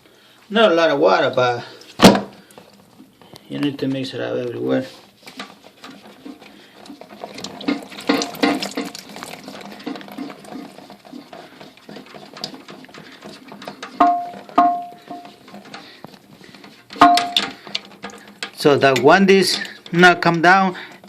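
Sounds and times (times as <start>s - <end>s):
water draining from toilet tank: 6.8s - 10.9s
sharp ringing knocks: 14.0s - 15.3s, 17.0s - 17.5s.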